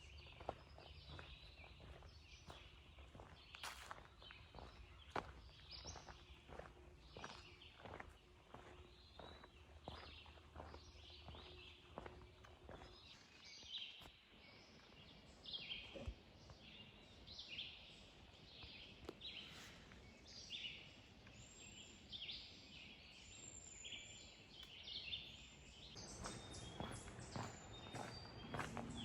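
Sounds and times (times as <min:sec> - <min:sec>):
faint songbirds singing: 0:00.0 - 0:29.0
footsteps: 0:00.4 - 0:13.0, 0:26.0 - 0:29.0.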